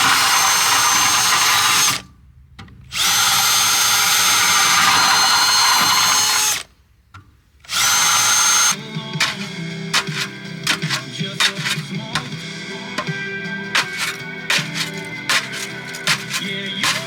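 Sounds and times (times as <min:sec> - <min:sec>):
power drill boring through ceramic: 0:00.0 - 0:02.0, 0:02.9 - 0:06.7, 0:07.7 - 0:12.4, 0:13.7 - 0:17.0
music: 0:08.4 - 0:17.0.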